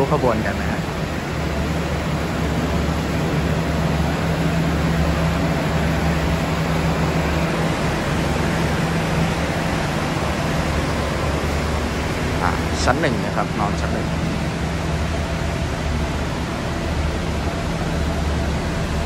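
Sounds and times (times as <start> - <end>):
engines and air-conditioning rushing: 0.0 - 19.0
low mechanical hum: 0.0 - 19.0.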